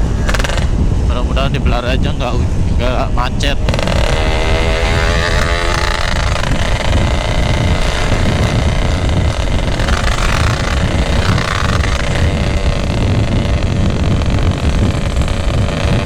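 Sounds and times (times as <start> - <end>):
two-stroke motorcycle running: 0.0 - 16.0.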